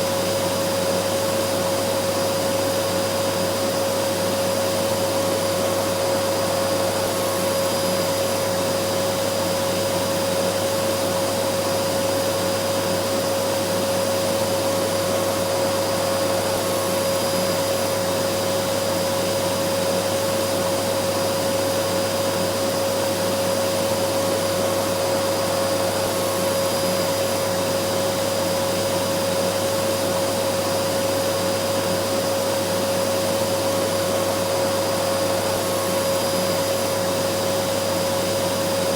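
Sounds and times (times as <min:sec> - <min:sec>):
vacuum cleaner motor running: 0:00.0 - 0:38.9.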